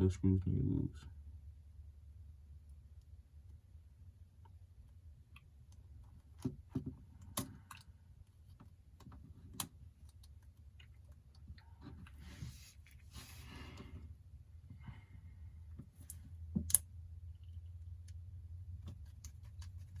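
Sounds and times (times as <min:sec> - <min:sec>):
steady low hum: 0:00.0 - 0:20.0
person breathing: 0:12.2 - 0:15.7.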